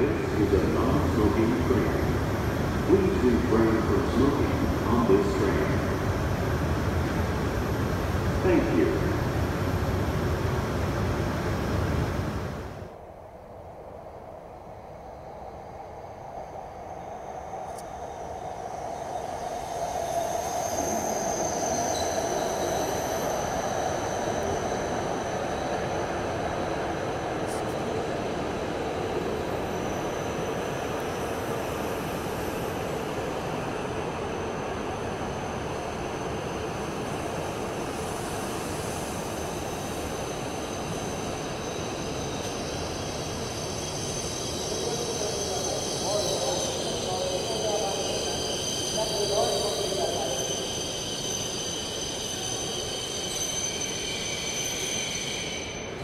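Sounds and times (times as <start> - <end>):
train cars rumbling past: 0.0 - 13.0
train rumble and hiss: 0.0 - 56.0
thin high whine: 36.2 - 56.0.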